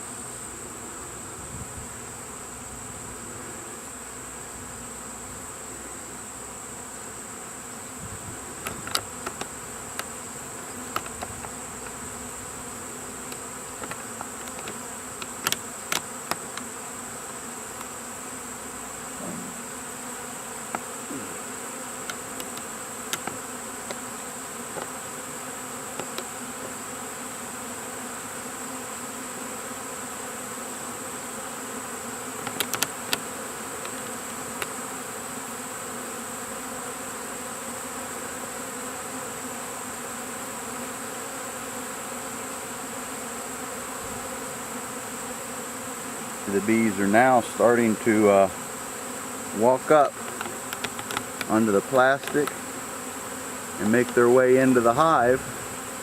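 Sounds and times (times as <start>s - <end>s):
bees buzzing: 0.0s - 56.0s
sharp ticks: 22.0s - 24.0s, 32.4s - 34.8s, 50.2s - 51.5s.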